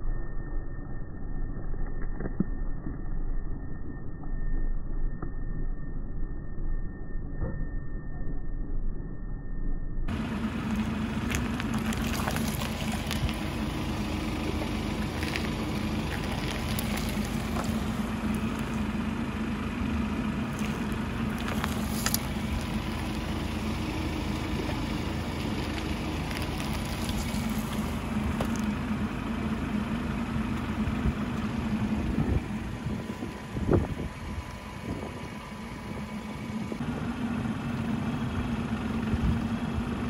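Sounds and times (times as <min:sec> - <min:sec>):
car engine idling: 0:10.1 - 0:40.0
tyre crushing small objects: 0:11.2 - 0:13.7, 0:14.4 - 0:18.0, 0:20.6 - 0:22.7.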